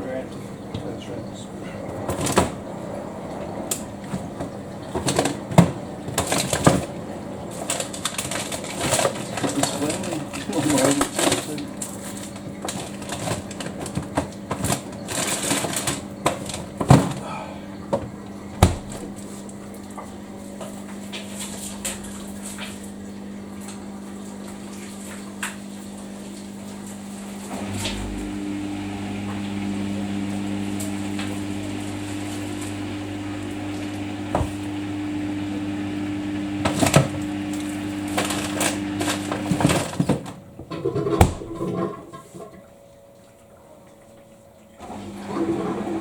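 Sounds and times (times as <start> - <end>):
washing machine draining: 0.0 - 46.0
laundry tumbling: 3.4 - 24.1, 36.5 - 42.6.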